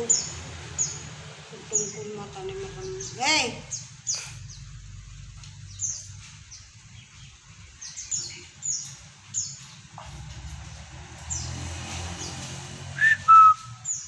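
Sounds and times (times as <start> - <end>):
bird chirping: 0.0 - 10.3, 11.2 - 14.0
low steady rumble: 0.2 - 8.1.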